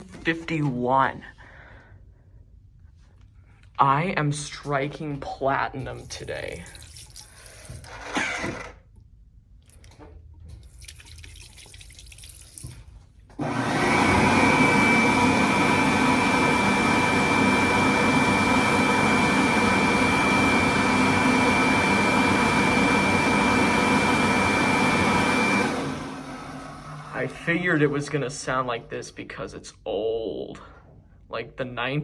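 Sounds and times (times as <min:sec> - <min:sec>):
hand dryer blowing with whine: 0:13.4 - 0:28.9.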